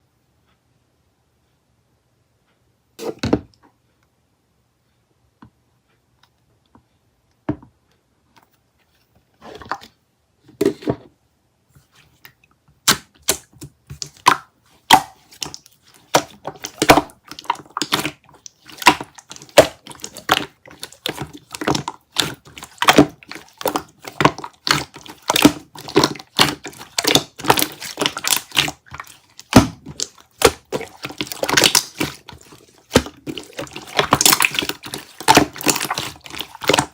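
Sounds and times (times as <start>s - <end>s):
slime squishing with clicks and pops: 12.3s - 36.9s.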